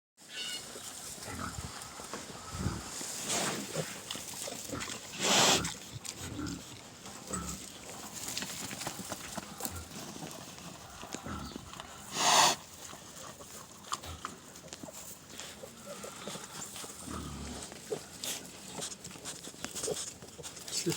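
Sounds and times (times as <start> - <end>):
farm animal cries: 0.3 - 3.0.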